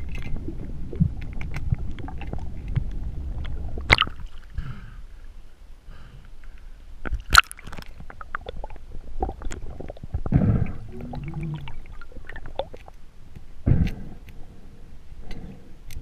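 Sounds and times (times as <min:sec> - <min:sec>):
underwater clicks and knocks: 0:00.0 - 0:04.4
low gurgling burst: 0:08.4 - 0:12.7.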